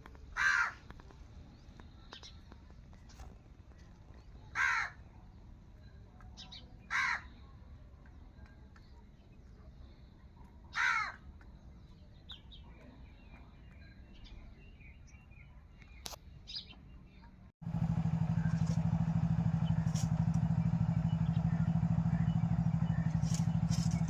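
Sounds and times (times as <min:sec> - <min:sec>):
faint bird chirping: 0:01.3 - 0:24.0
loud bird calls: 0:06.4 - 0:07.4, 0:17.7 - 0:24.0.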